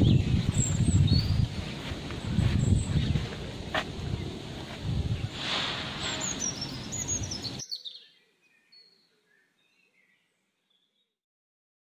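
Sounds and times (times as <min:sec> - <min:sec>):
bird singing high chirps: 0:00.0 - 0:01.5, 0:06.1 - 0:11.1.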